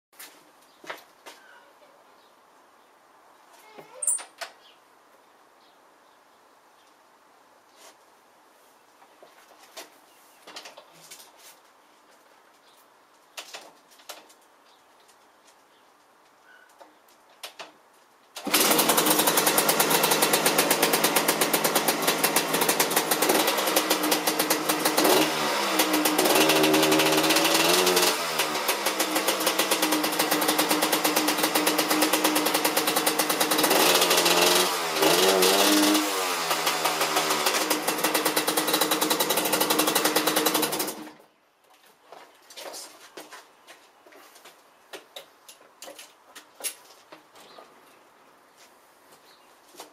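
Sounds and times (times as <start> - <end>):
two-stroke dirt bike engine revving: 18.4 - 41.1.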